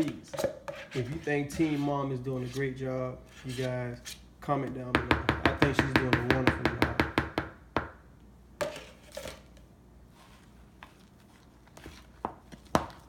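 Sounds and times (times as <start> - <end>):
utensil scraping bowl: 0.0 - 4.3.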